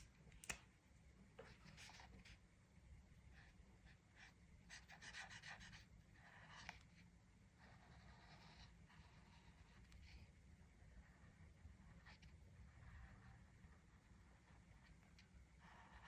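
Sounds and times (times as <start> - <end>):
coloring tool scratching on paper: 4.7 - 16.0.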